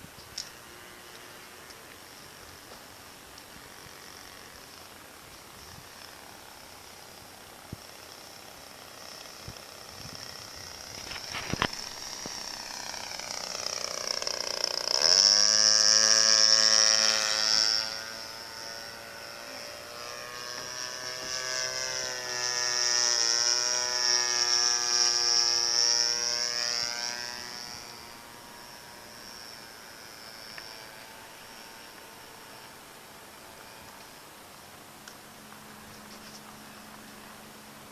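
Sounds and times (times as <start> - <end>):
model aircraft engine buzzing: 0.0 - 37.9.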